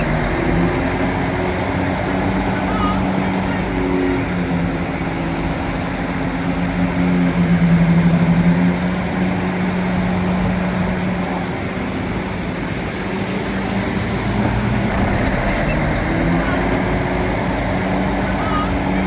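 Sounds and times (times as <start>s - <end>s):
bulldozer diesel engine running: 14.1s - 19.0s.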